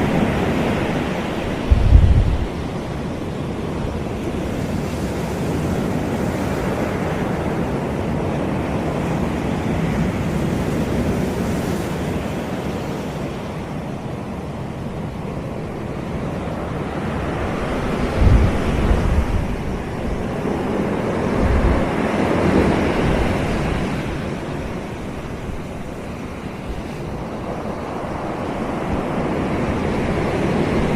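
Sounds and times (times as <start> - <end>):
waves washing onto beach: 0.0 - 30.9
wind buffeting microphone: 0.0 - 30.9.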